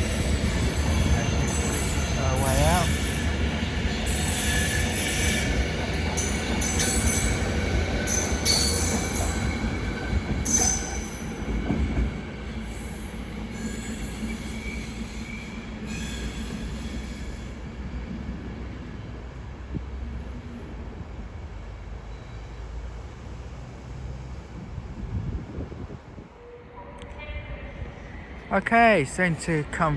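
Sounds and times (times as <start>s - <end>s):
train wheels squealing on rails: 0.0s - 18.0s, 20.1s - 21.2s, 21.9s - 23.2s
train rumble: 0.0s - 29.9s.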